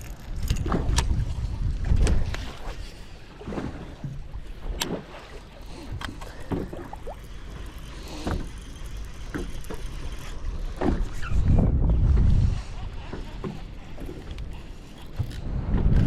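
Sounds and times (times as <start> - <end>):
wind rumble on microphone: 0.0 - 4.6, 10.3 - 16.0
water lapping against boat hull: 0.0 - 16.0.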